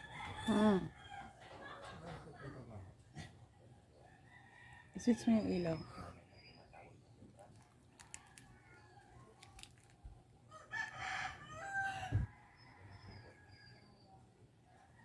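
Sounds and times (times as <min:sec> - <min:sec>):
rooster crowing faintly: 0:10.5 - 0:15.0.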